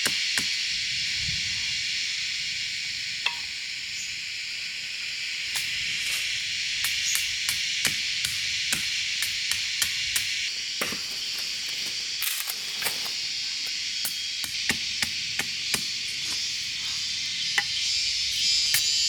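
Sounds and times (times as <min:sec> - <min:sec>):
steady high hiss: 0:00.0 - 0:19.0
hammering on wood: 0:06.8 - 0:11.2, 0:14.4 - 0:16.0.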